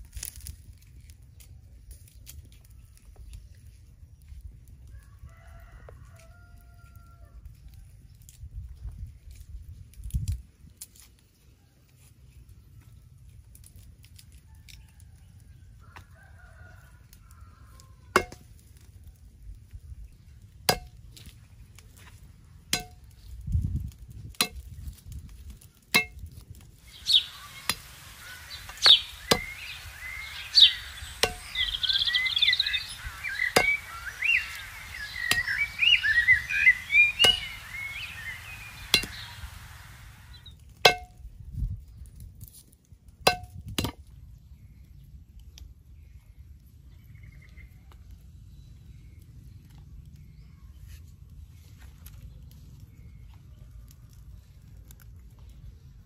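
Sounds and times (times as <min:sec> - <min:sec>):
chickens clucking: 0:26.9 - 0:40.4.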